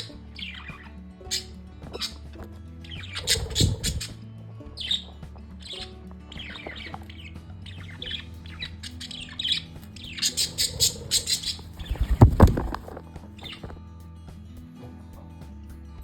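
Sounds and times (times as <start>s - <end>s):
parrots chirping and squawking: 0.0s - 13.7s.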